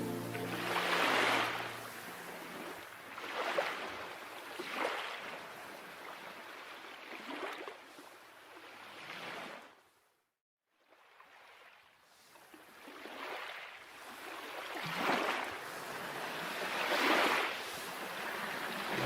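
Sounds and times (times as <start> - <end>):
soft background music: 0.0 - 2.0
water surging in swells: 0.0 - 7.4, 12.8 - 19.0.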